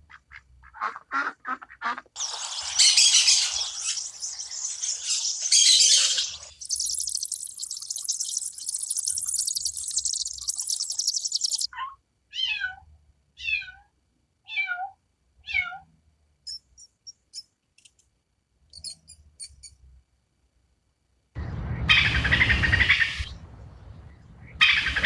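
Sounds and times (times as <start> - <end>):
animal rattling chatter: 2.2 - 11.7
short high chirps: 2.2 - 11.7.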